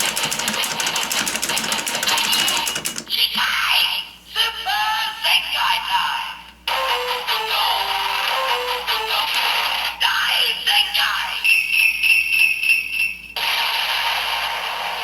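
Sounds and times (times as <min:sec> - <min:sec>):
rapidly repeating ringing tone: 0:00.0 - 0:03.1.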